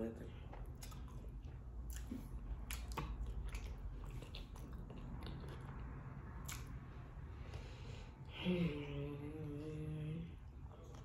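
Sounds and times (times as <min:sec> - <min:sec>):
wet chewing: 0:00.3 - 0:07.0.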